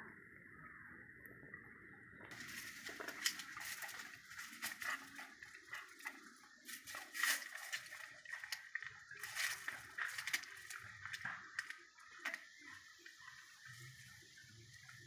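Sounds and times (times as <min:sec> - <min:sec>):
dog eating: 0:02.4 - 0:12.8.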